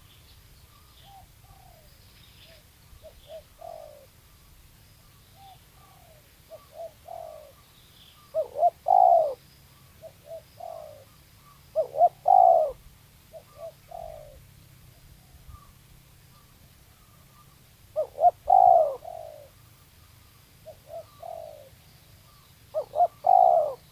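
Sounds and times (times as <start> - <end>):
small bird chirping: 0.0 - 14.4, 15.0 - 23.9
doves cooing: 3.0 - 4.2, 5.4 - 7.6, 8.3 - 9.4, 10.0 - 14.5, 16.4 - 19.7, 20.6 - 23.9.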